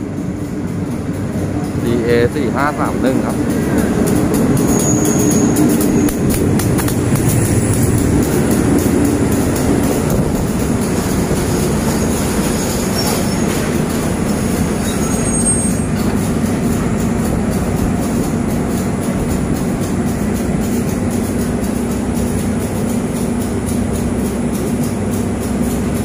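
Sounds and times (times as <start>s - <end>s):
train wheels rumbling on track: 0.0s - 26.0s
high-pitched wheel squeal: 4.6s - 6.2s, 11.9s - 13.7s, 14.7s - 16.2s.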